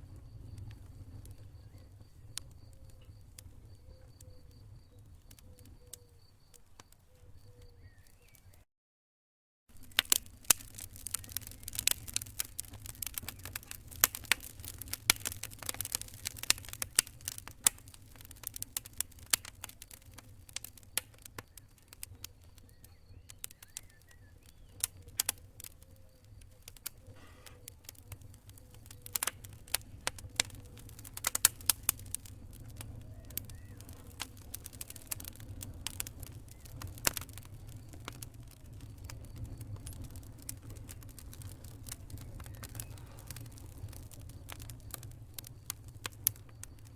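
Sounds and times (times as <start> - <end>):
campfire crackling: 0.0 - 8.6, 9.7 - 46.9
low rumble of fire: 0.0 - 8.6, 9.7 - 46.9.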